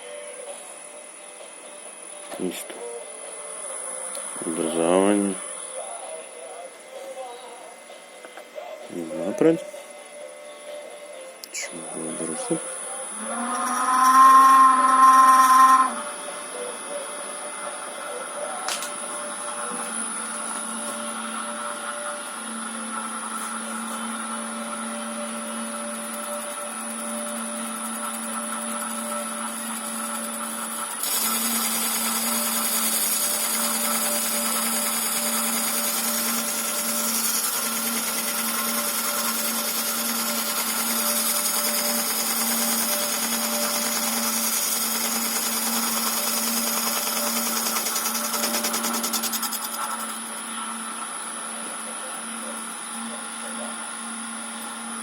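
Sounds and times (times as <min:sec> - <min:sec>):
lathe electric motor whining: 0:11.8 - 0:51.3
hiss: 0:39.2 - 0:50.1.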